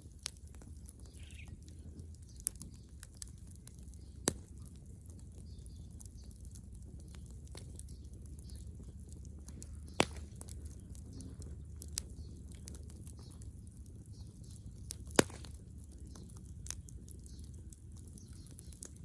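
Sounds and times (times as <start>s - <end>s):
bonfire crackling and popping: 0.0s - 19.0s
steady low rumble: 4.8s - 19.0s.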